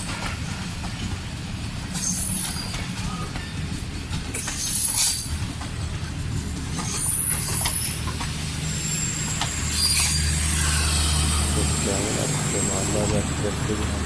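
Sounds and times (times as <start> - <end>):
diesel locomotive engine drone: 0.0 - 14.0
train squeals: 0.0 - 14.0
train hisses: 6.8 - 14.0.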